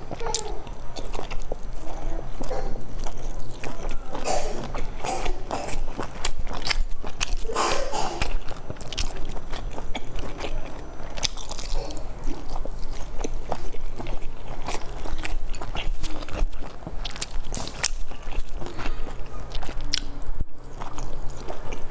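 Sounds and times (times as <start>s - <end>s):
chewing soft dumplings: 0.0s - 21.9s.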